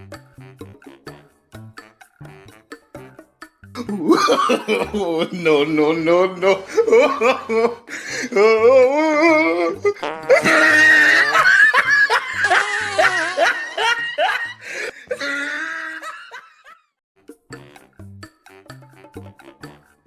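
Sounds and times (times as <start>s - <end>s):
background music with steady beat: 0.0s - 10.6s, 17.2s - 20.0s
loud hearty laughter: 3.8s - 5.5s, 6.2s - 16.9s.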